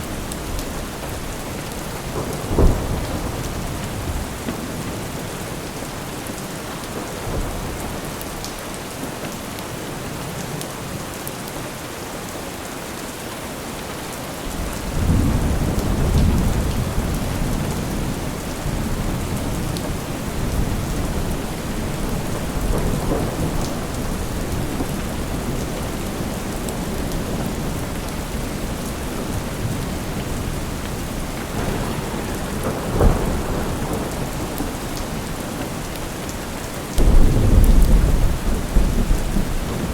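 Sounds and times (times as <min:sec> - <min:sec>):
heavy rain: 0:00.0 - 0:39.9
rolling thunder: 0:00.2 - 0:05.7, 0:14.5 - 0:36.0, 0:36.9 - 0:39.9
sharp thunderclap: 0:02.0 - 0:05.0, 0:14.6 - 0:27.8, 0:31.4 - 0:35.2, 0:37.0 - 0:39.9.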